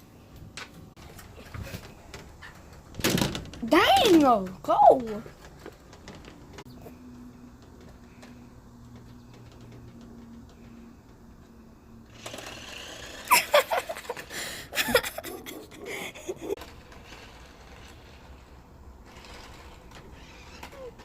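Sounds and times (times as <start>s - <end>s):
toy car electric motor whirring: 12.0s - 21.0s.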